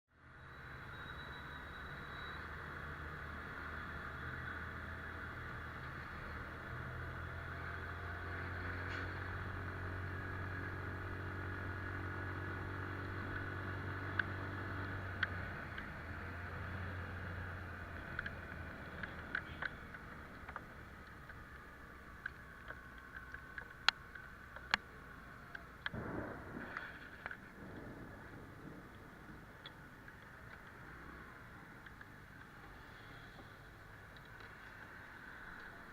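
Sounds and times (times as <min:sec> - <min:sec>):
sharp ticks: 0:17.9 - 0:26.5.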